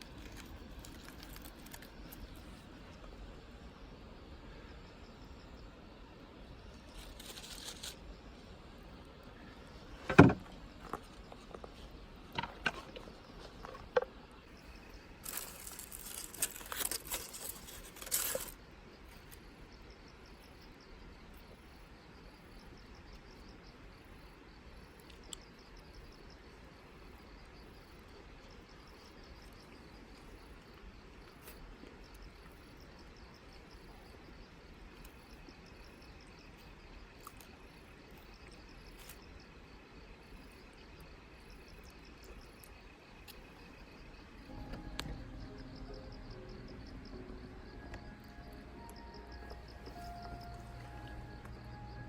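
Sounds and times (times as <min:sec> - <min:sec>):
faint insects chirping: 0:00.0 - 0:52.0
rustling handling noise: 0:15.2 - 0:18.6.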